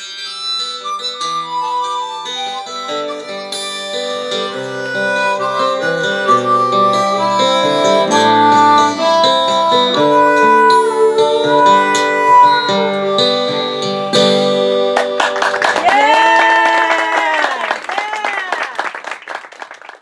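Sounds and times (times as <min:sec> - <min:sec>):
acoustic guitar: 0:00.0 - 0:15.3
harmonica holding long notes: 0:00.0 - 0:16.8.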